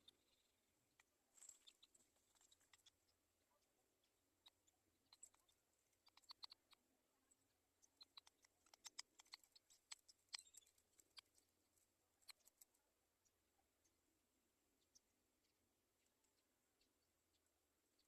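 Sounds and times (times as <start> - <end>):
faint clicks and taps: 4.4 - 14.0.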